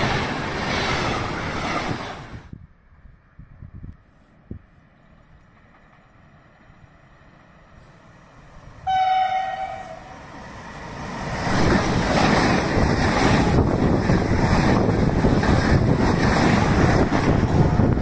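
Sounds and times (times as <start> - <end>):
passing train rumble: 0.0 - 18.0
train horn blast: 8.8 - 10.2.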